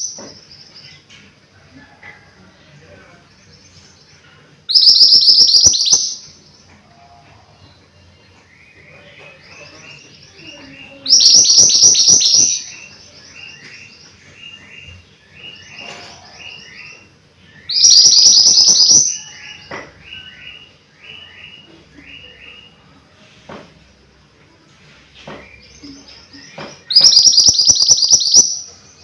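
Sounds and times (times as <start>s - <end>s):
songbird chirping: 0.0s - 29.0s
fast high bird trill: 4.7s - 6.2s, 11.1s - 12.8s, 17.7s - 19.6s, 26.9s - 28.7s.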